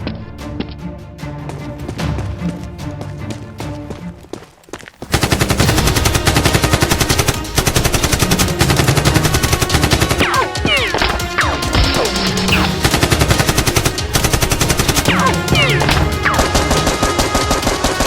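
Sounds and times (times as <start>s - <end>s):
background music: 0.0s - 18.0s
automatic gunfire: 5.1s - 11.7s, 12.5s - 18.0s.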